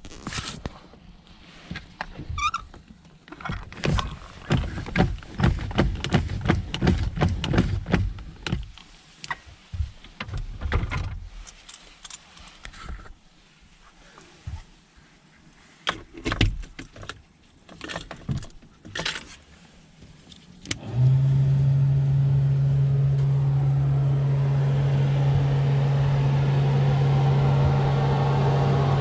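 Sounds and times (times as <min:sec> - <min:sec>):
knocks and clunks: 0:01.7 - 0:11.2
brief squeak: 0:02.4 - 0:02.7.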